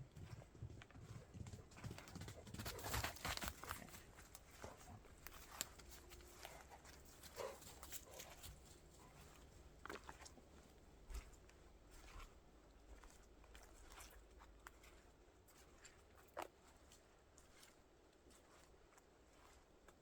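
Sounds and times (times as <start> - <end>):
footsteps crunching in snow: 2.6 - 14.1.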